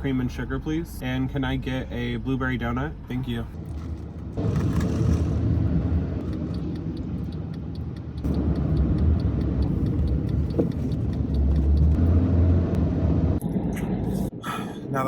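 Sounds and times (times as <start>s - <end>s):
car running low rumble: 0.0s - 15.0s
turn signal ticking: 4.3s - 12.8s.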